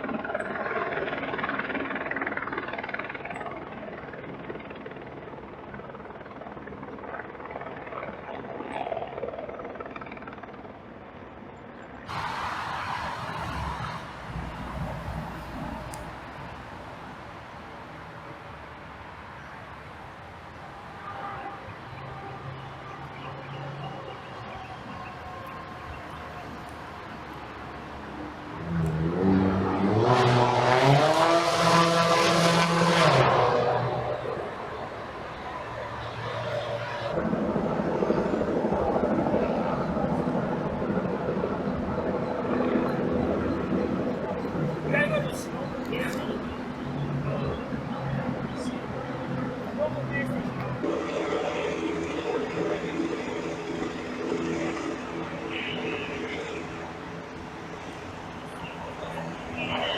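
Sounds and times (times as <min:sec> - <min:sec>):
loud full noise: 0:12.1 - 0:39.3, 0:46.6 - 0:59.9
vehicle engine rumble: 0:12.1 - 0:59.9.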